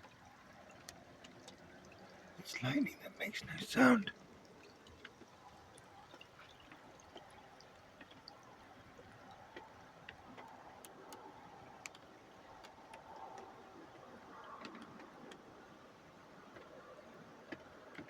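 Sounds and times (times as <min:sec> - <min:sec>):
faint ticks and clicks: 0:00.0 - 0:02.6, 0:03.4 - 0:18.0
low background hiss: 0:00.0 - 0:12.9.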